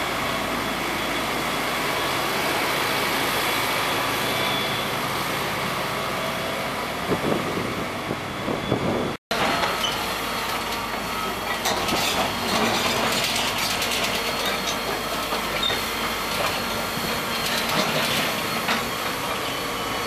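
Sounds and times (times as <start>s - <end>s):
excavator machinery running: 0.0s - 20.0s
clatter of knocks and rattles: 17.4s - 18.9s.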